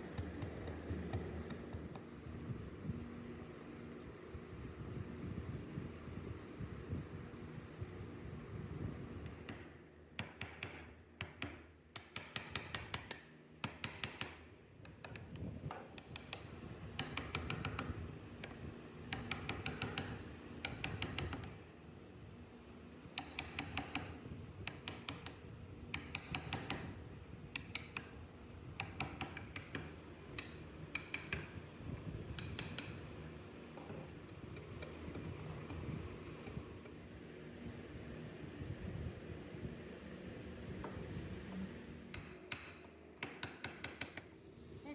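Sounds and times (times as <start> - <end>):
chisel tapping wood: 0.1 - 2.1, 9.2 - 21.7, 23.2 - 26.9, 27.5 - 28.1, 28.8 - 31.6, 32.3 - 35.8, 40.8 - 44.3.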